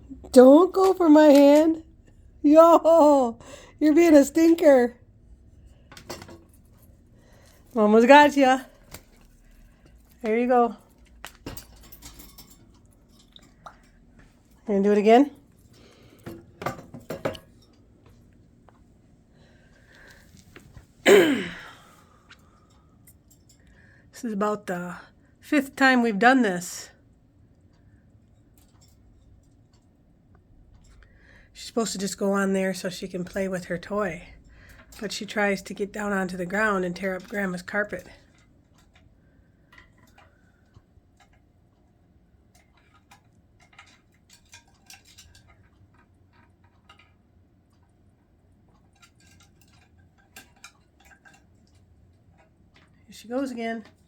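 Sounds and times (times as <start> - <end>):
parrot claws clicking and tapping: 42.5 - 48.0, 48.7 - 53.1.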